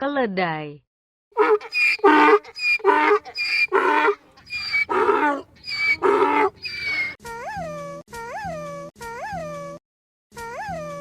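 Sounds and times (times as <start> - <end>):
donkey braying: 1.4 - 7.2.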